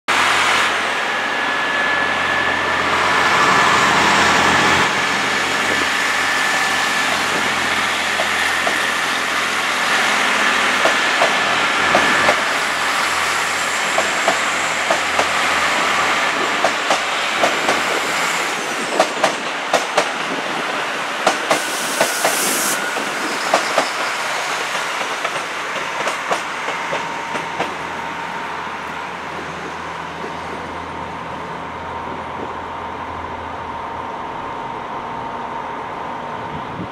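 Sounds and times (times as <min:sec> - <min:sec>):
train running past: 0:00.1 - 0:36.9
high wheel squeal: 0:01.0 - 0:10.8, 0:21.4 - 0:25.0.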